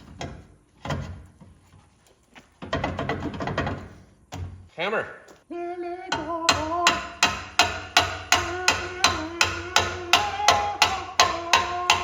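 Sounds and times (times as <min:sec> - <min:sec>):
hammer blows: 0:06.1 - 0:12.0.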